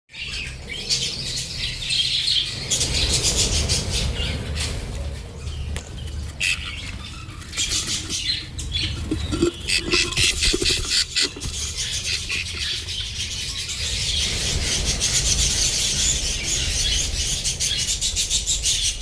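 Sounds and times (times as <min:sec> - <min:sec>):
steady low hum: 0:01.1 - 0:14.9
rapid clicky bird calls: 0:05.4 - 0:19.0
budgerigars squawking: 0:06.2 - 0:15.8.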